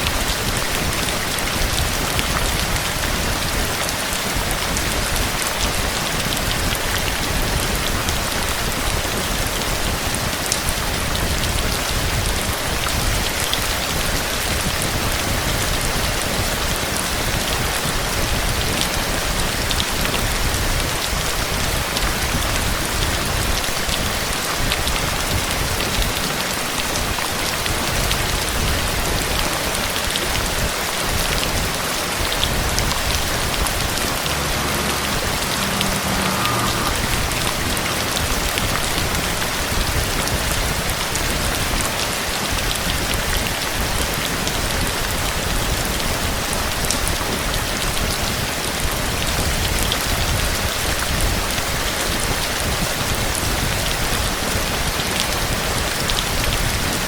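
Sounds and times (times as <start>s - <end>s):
steady rain hiss: 0.0s - 57.0s
low rumble: 32.3s - 41.5s.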